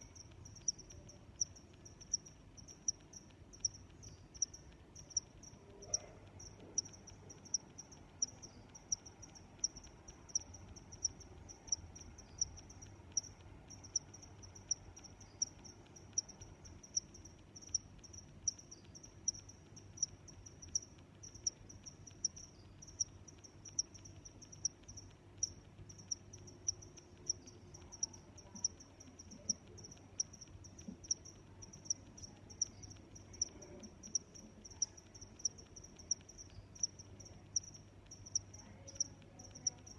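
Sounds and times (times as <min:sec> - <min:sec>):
crickets chirping: 0:00.0 - 0:39.9
high insect trill: 0:00.0 - 0:39.9.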